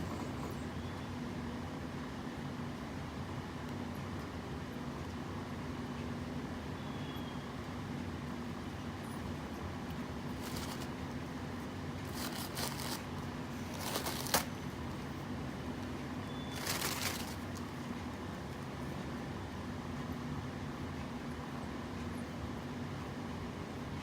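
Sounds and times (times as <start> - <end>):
low room hum: 0.0 - 24.0
brief rustles: 10.3 - 11.0, 12.0 - 15.2, 16.5 - 17.8.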